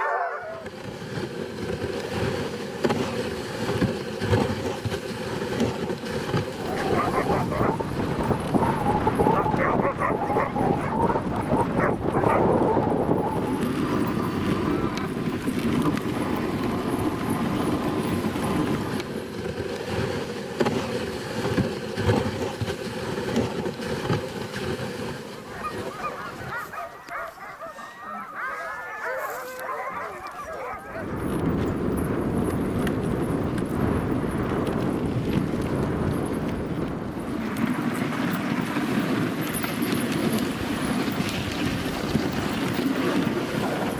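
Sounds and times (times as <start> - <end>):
huskies howling and yipping: 0.0 - 0.7, 6.6 - 15.1, 25.5 - 31.4
sled runners scraping on snow: 0.0 - 43.9.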